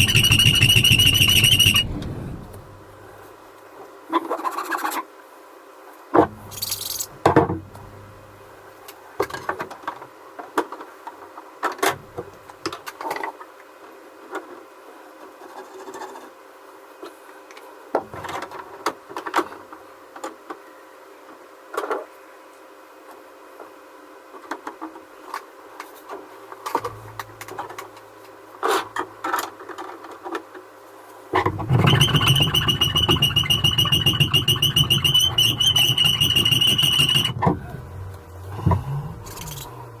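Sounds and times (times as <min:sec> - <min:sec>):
small motor tool whining: 0:31.8 - 0:40.0.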